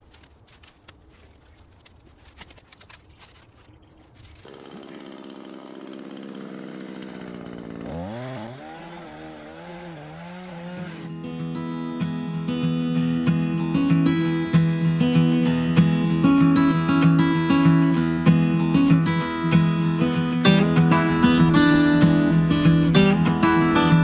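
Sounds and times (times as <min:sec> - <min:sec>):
chainsaw revving: 0:04.5 - 0:11.1, 0:20.5 - 0:24.0.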